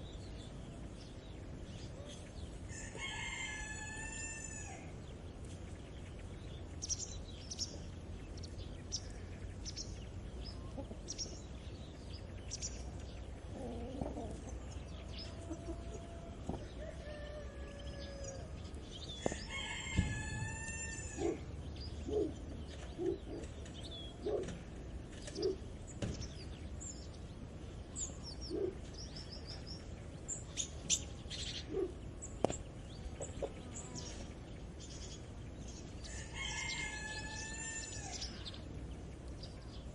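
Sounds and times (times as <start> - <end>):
low background rumble: 0.0 - 39.9
small birds chirping: 0.0 - 39.9
rooster crowing: 2.7 - 5.0, 15.2 - 18.6, 19.2 - 21.5, 36.0 - 38.3
hens clucking: 10.5 - 11.2, 13.3 - 17.0.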